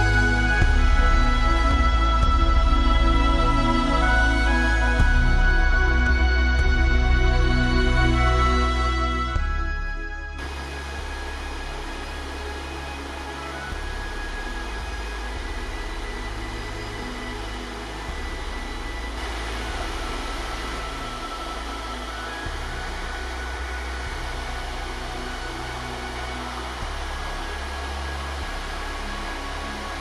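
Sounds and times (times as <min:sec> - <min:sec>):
soft background music chords: 0:00.0 - 0:30.0
steady rushing noise: 0:10.4 - 0:30.0.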